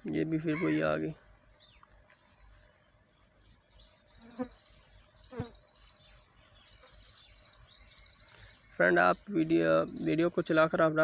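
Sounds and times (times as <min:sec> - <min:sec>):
bird chirps: 0:00.0 - 0:11.0
high insect drone: 0:00.0 - 0:11.0.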